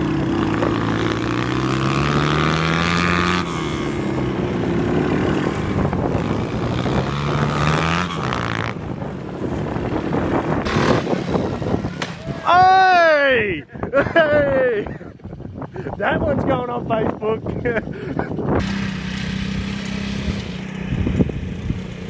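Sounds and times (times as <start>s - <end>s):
motorbike engine revving: 0.0s - 12.7s, 18.4s - 22.0s.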